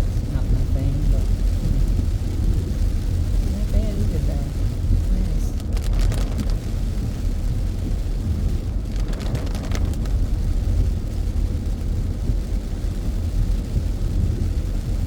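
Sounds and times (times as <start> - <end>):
car engine and tyres rumbling: 0.0 - 15.0
faint ticks and rattles: 5.5 - 6.7, 8.9 - 10.8.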